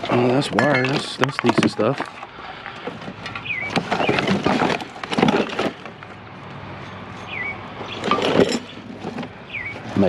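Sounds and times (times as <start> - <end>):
rummaging through scrap: 0.0 - 10.0
bird chirping: 3.3 - 4.7, 7.1 - 10.0.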